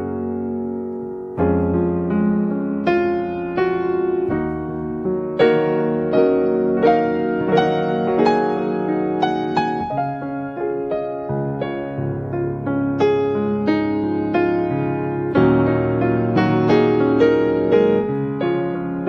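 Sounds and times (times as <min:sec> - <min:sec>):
slow gentle piano music: 0:00.0 - 0:19.0.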